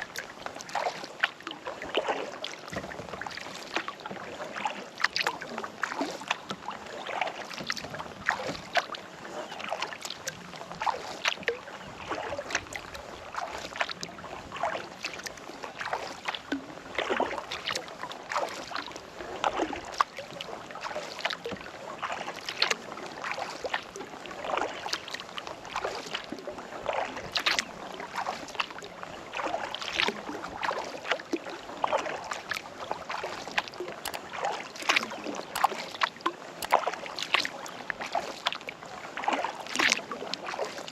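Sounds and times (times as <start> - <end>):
paddle dipping into water: 0.0 - 40.9
water dripping off paddle: 9.6 - 12.6, 29.4 - 40.8.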